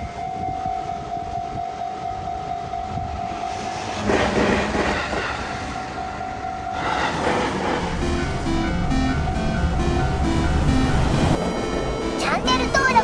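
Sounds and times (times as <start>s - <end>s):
level crossing warning bell: 0.0s - 3.5s, 7.8s - 13.0s
train rushing past: 1.6s - 13.0s.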